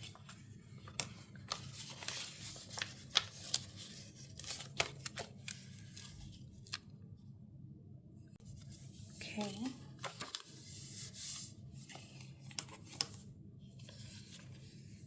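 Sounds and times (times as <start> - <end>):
paper rustling: 0.0 - 6.8, 10.0 - 15.0.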